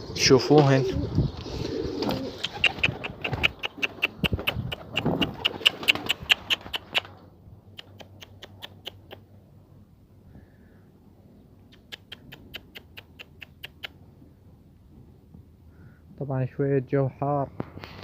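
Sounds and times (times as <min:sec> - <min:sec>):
sharp rapid ticks: 0:02.4 - 0:07.1, 0:07.7 - 0:09.2, 0:11.7 - 0:14.0.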